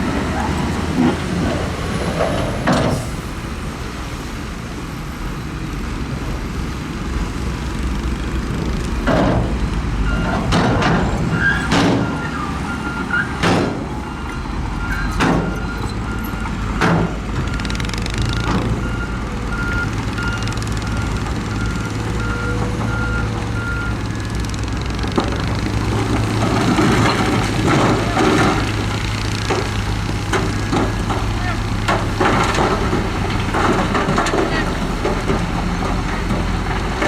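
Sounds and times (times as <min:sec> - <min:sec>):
diesel machinery rumbling: 0:00.0 - 0:37.0
reversing alarm beeping: 0:11.3 - 0:24.5.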